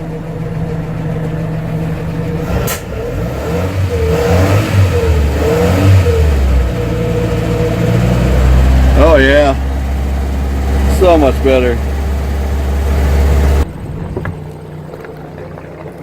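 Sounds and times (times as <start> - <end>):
inboard engine running: 0.0 - 16.0.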